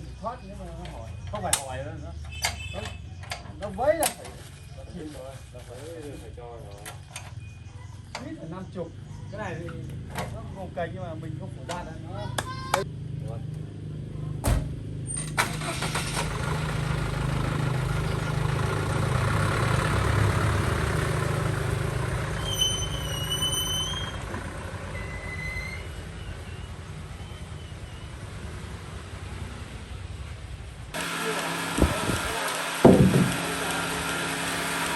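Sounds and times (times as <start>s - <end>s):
truck engine running: 13.0s - 34.9s
brief high squeal: 22.4s - 24.2s, 24.9s - 26.7s.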